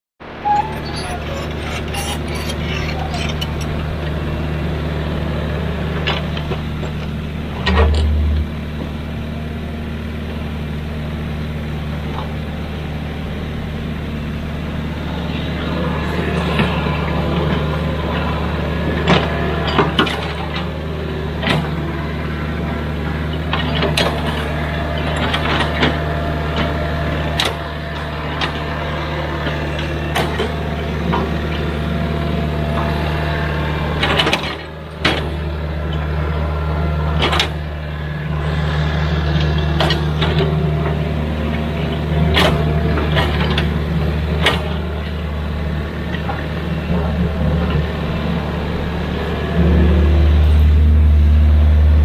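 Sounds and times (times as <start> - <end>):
excavator diesel engine: 0.2 - 52.0.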